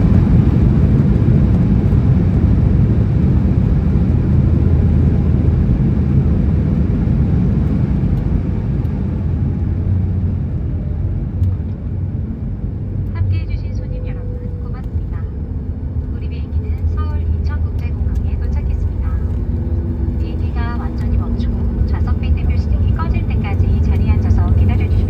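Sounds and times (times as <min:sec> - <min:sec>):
aircraft cabin rumble: 0:00.0 - 0:25.0
faint hum: 0:00.0 - 0:25.0.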